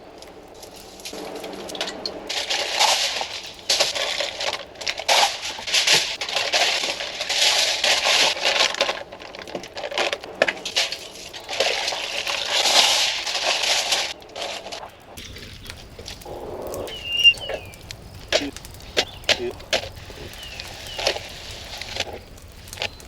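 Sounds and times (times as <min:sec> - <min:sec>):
crunching and crinkling: 0:00.0 - 0:23.0
sharp clicks: 0:15.6 - 0:23.0.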